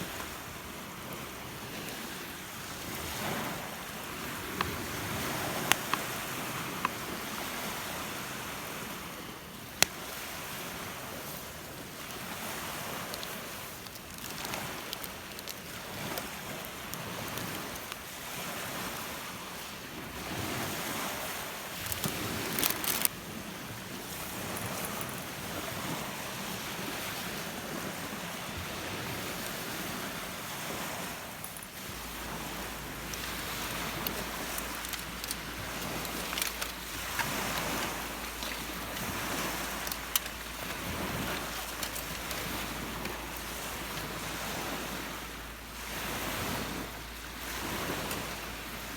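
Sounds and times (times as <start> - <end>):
waves breaking on a beach: 0.0 - 48.9
sharp clicks: 33.1 - 43.2.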